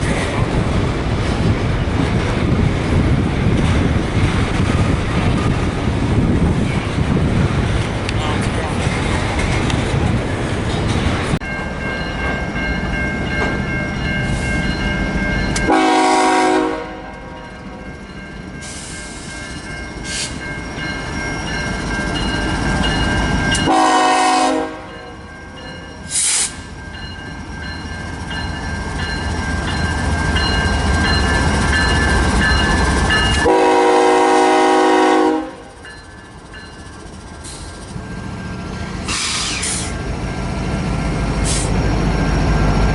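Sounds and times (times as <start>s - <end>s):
passing train rumble: 0.0s - 42.9s
locomotive air horn blasts: 15.7s - 17.4s, 23.6s - 25.0s, 33.4s - 35.7s.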